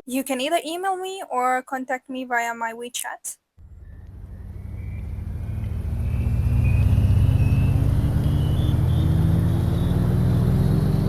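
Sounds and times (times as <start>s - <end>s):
high whine climbing in pitch: 3.6s - 11.0s
vehicle accelerating: 3.6s - 11.0s.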